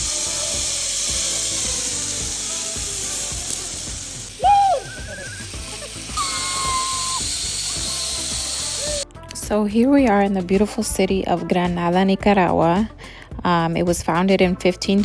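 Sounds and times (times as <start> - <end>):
zip line pulley whirring: 0.0 - 9.1
background music: 0.0 - 15.0
person shouting: 4.4 - 5.2.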